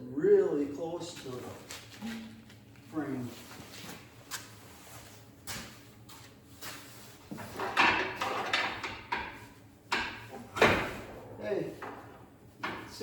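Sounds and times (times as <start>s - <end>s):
metal knocking and scraping: 7.3s - 13.0s.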